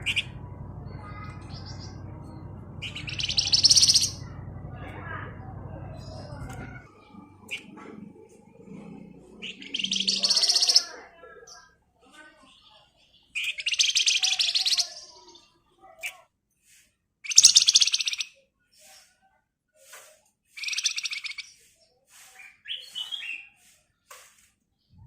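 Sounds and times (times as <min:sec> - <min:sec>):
songbird rattling trill: 0:00.0 - 0:06.8, 0:09.4 - 0:10.9, 0:13.4 - 0:15.0, 0:17.3 - 0:18.2
bird chirps and whistled notes: 0:02.8 - 0:04.3, 0:09.4 - 0:10.8, 0:13.4 - 0:14.8, 0:20.6 - 0:21.6.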